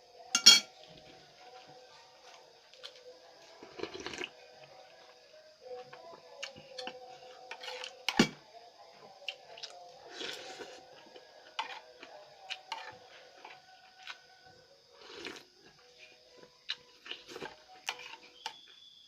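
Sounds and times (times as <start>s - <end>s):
utensil tapping a plate: 0.4s - 0.7s
soft chewing: 0.8s - 8.0s, 8.8s - 18.7s.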